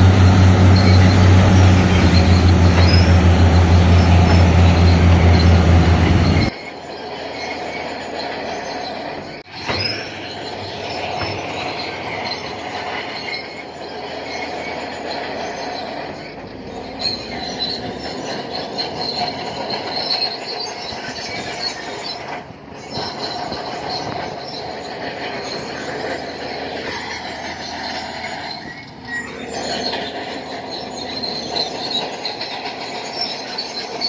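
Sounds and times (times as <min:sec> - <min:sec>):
diesel engine running: 0:00.0 - 0:06.5, 0:10.1 - 0:20.8, 0:22.6 - 0:34.0
bulldozer tracks squealing: 0:00.0 - 0:34.0.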